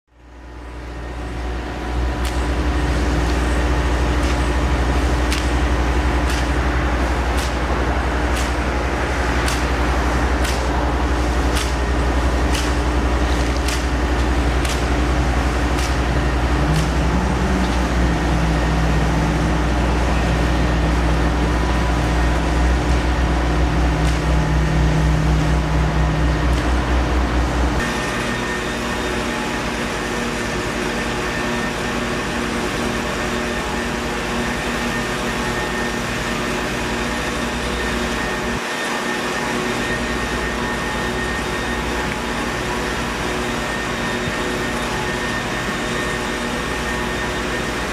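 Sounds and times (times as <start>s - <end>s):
lower hum: 0.1s - 38.6s
large engine rumbling: 0.3s - 27.9s.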